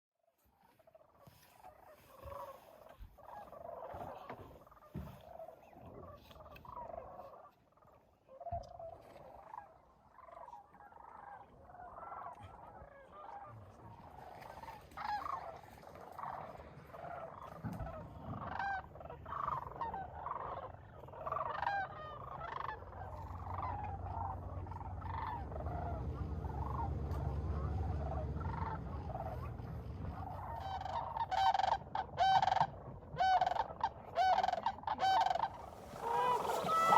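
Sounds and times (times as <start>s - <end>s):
cranes calling: 0.7s - 36.9s
low rumble: 22.8s - 33.1s.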